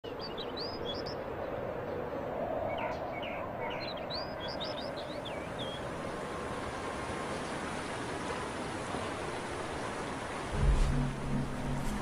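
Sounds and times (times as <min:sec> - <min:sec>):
small birds chirping: 0:00.0 - 0:06.2.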